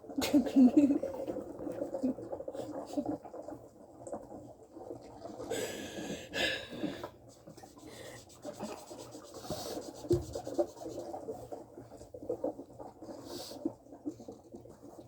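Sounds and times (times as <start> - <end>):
soft rustling and scratching: 7.1 - 15.0.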